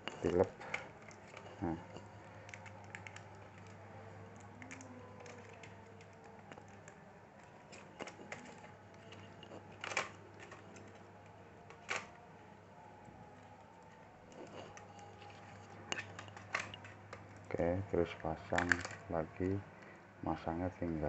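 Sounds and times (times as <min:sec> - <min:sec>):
faint steady hum: 0:00.0 - 0:21.0
plastic clicks of laptop parts: 0:00.6 - 0:07.0, 0:07.7 - 0:12.3, 0:14.4 - 0:17.3, 0:18.5 - 0:19.1.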